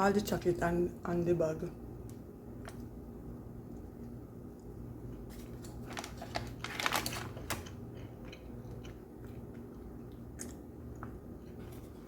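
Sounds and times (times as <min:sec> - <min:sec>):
person chewing donut: 0:07.3 - 0:12.0.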